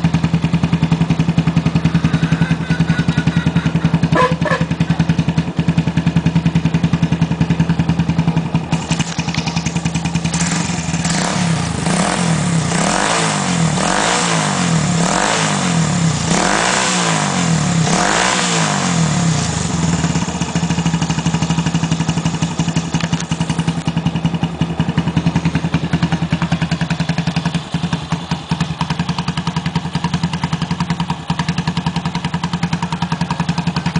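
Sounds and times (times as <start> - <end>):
engine idling and revving: 0.0 - 33.9.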